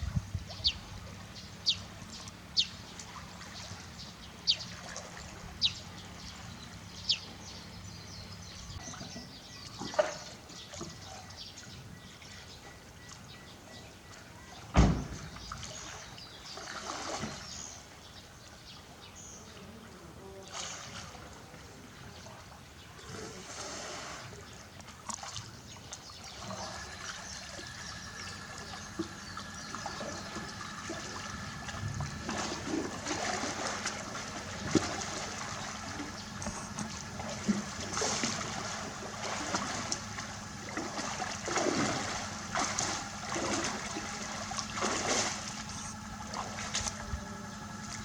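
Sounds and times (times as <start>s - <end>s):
water trickling and sloshing: 0.0s - 48.0s
bird chirping: 0.4s - 4.8s, 5.6s - 14.7s, 26.1s - 31.7s.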